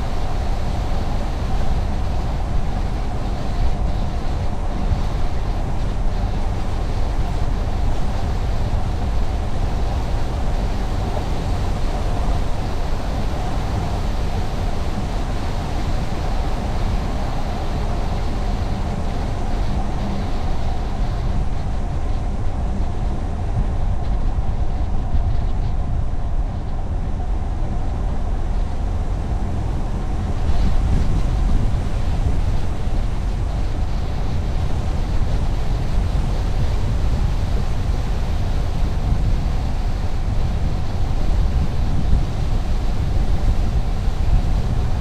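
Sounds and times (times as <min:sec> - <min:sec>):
road and tyre noise: 0:00.0 - 0:45.0
car engine hum: 0:04.2 - 0:21.1.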